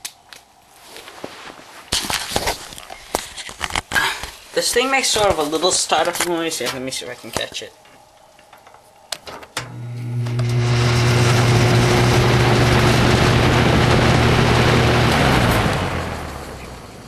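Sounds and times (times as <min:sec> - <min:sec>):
fan motor humming: 0:09.1 - 0:17.0
air rushing from fan blades: 0:10.4 - 0:17.0.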